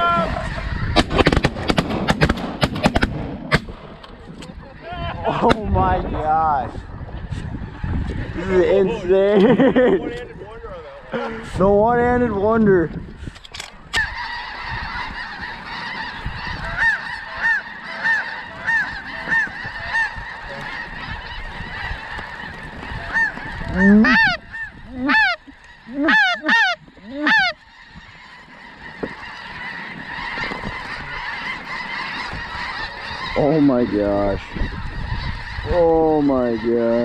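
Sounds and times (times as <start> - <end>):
geese honking: 0.0 - 1.5, 13.8 - 37.0.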